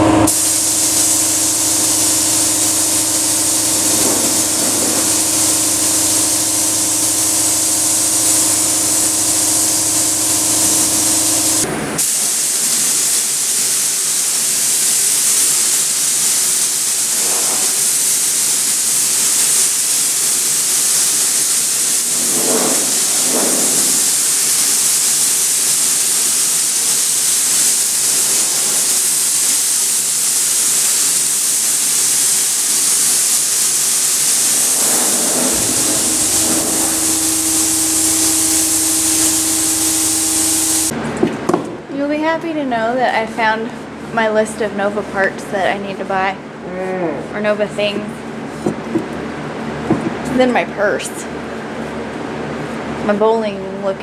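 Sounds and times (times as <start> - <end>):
paint spray gun hissing: 0.0 - 41.0, 43.1 - 46.2
low steady hum: 34.3 - 51.8.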